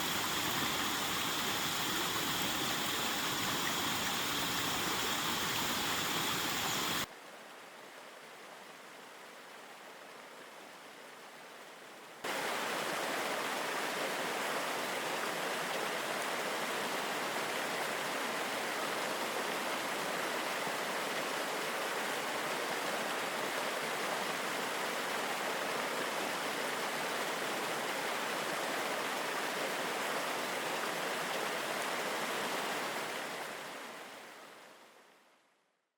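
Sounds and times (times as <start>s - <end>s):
waterfall rushing: 0.0s - 7.1s.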